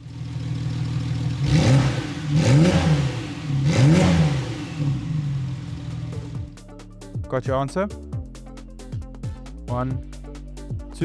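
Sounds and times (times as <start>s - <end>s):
car engine idling and revving: 0.0s - 7.3s.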